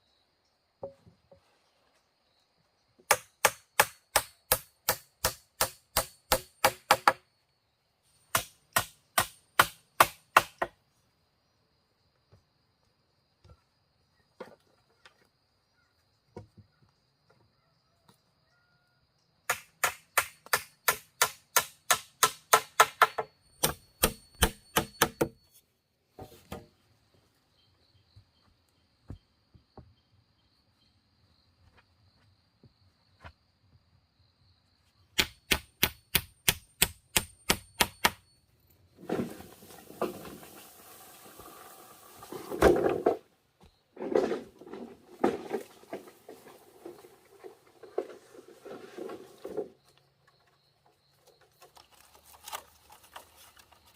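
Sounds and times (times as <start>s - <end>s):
sharp strikes on wood: 3.1s - 7.2s, 8.3s - 10.8s, 19.5s - 25.4s, 35.2s - 38.3s
rustling of leaves or brush: 39.0s - 42.6s, 51.5s - 53.9s.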